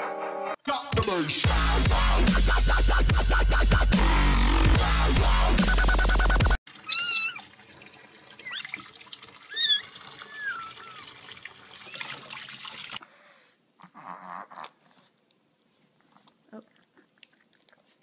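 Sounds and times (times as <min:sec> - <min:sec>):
electronic dance music: 0:00.9 - 0:06.6
cat meowing: 0:06.8 - 0:07.4, 0:09.5 - 0:11.1.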